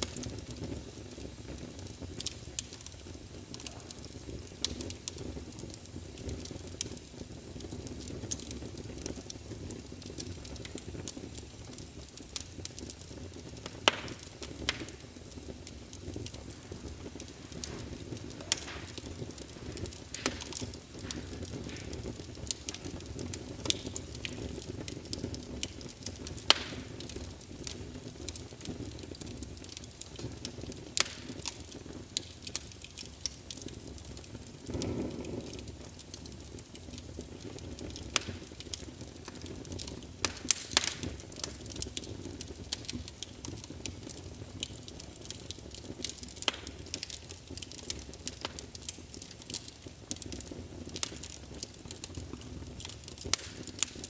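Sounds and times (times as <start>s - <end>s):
rush of flame: 0.0s - 27.8s, 33.7s - 42.1s
wood fire crackling and popping: 0.0s - 54.0s.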